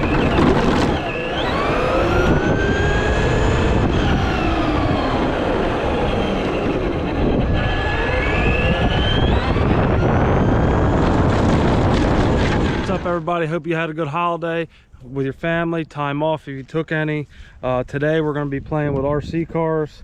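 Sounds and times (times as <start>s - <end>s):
electric toy truck motor whining: 0.0s - 12.8s
rushing tyres and wind: 0.0s - 13.2s.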